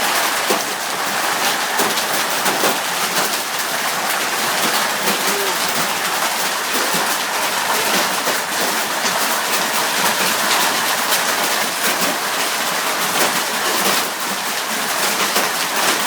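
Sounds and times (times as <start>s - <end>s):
hail clattering: 0.0s - 16.0s.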